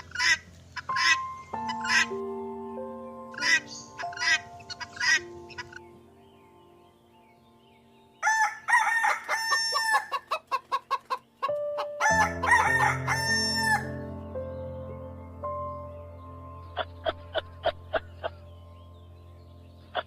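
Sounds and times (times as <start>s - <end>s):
chicken clucking: 0.0s - 2.1s, 3.4s - 5.9s, 8.5s - 13.8s
rooster crowing: 8.2s - 10.3s, 12.0s - 14.0s.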